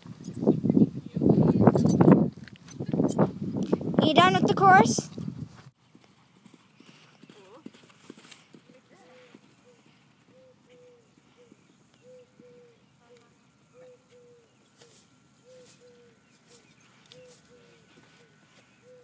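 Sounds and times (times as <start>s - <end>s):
faint low bird calls: 9.0s - 19.0s.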